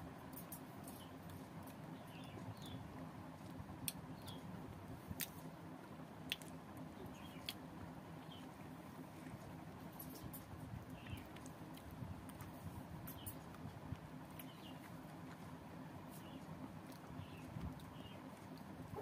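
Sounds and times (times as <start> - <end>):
wet chewing sounds: 6.2 - 19.0.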